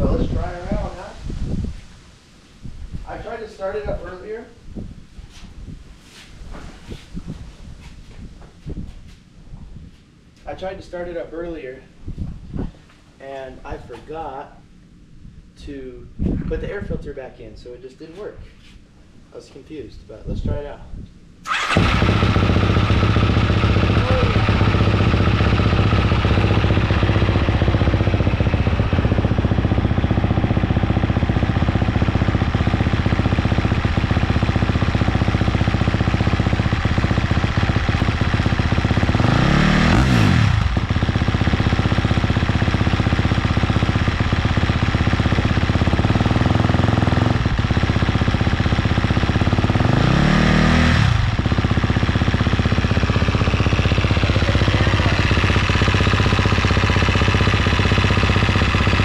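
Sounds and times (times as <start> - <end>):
motorcycle engine idling: 21.4 - 59.0.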